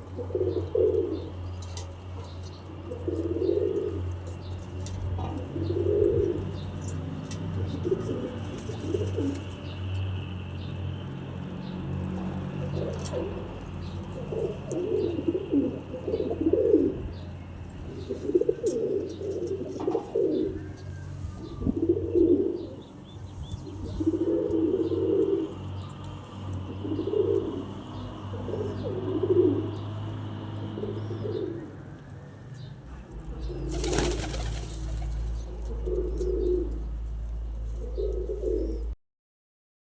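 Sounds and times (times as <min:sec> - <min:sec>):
pigeons cooing: 0:00.0 - 0:01.5, 0:02.8 - 0:04.2, 0:05.3 - 0:06.9, 0:07.5 - 0:09.8, 0:12.4 - 0:17.2, 0:17.8 - 0:26.0, 0:26.6 - 0:31.8, 0:33.1 - 0:37.0, 0:37.7 - 0:39.0
wings flapping: 0:33.6 - 0:35.5.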